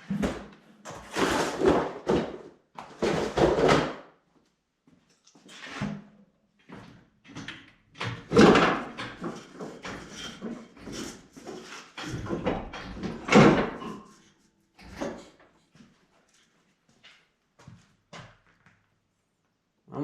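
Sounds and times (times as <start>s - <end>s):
metal parts clunking and scraping: 8.0s - 14.2s.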